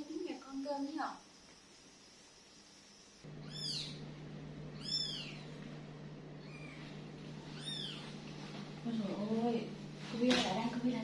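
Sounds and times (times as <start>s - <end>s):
steady low hum: 3.0s - 11.0s
kittens mewing: 3.4s - 4.0s, 4.7s - 5.6s, 6.4s - 8.2s.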